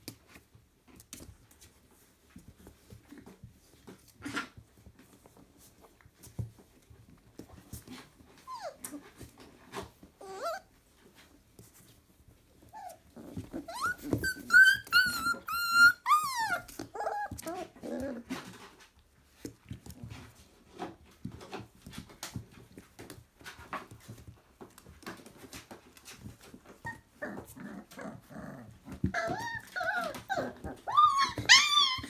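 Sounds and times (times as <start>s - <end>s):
puppies scuffling: 0.0s - 32.0s
puppy whining and whimpering: 7.8s - 11.3s, 12.5s - 18.7s, 26.0s - 32.0s
puppy yelping: 13.6s - 17.8s, 29.1s - 32.0s.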